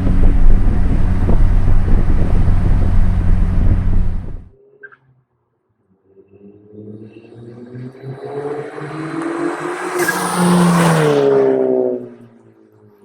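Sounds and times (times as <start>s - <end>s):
car driving by at full throttle: 0.0s - 4.5s, 7.8s - 12.3s.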